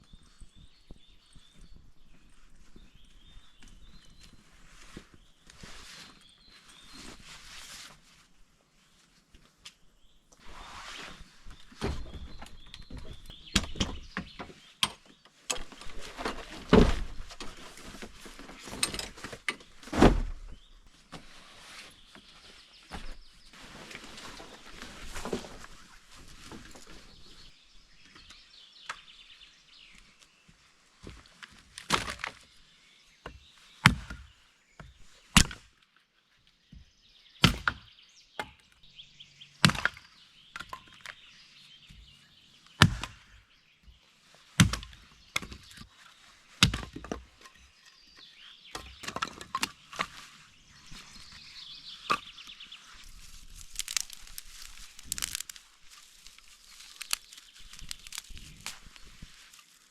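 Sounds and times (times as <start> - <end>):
wood knocking and cracking: 11.8 - 17.6, 53.0 - 59.8
faint rustling: 49.8 - 59.9.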